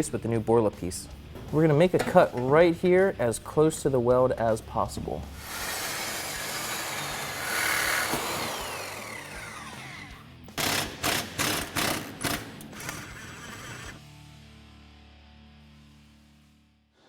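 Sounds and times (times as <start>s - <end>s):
power cutting tool cutting steel: 5.4s - 14.0s.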